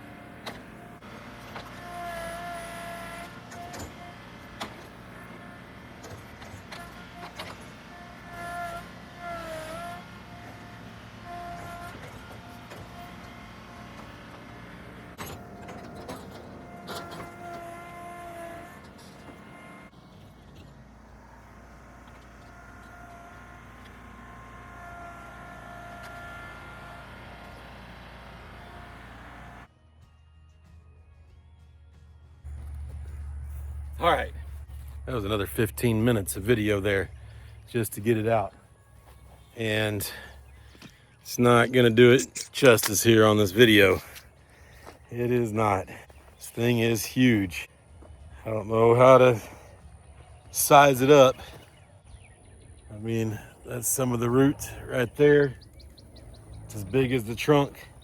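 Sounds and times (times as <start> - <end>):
pitched whine: 0.0 - 58.0
tractor running under load: 0.0 - 58.0
faint wavering whine: 32.3 - 58.0.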